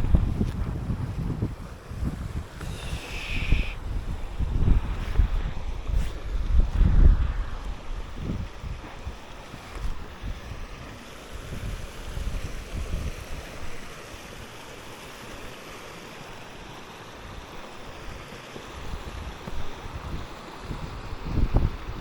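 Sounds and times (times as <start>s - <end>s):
wind buffeting microphone: 0.0s - 13.8s, 18.8s - 22.0s
steady rushing hiss: 0.0s - 22.0s.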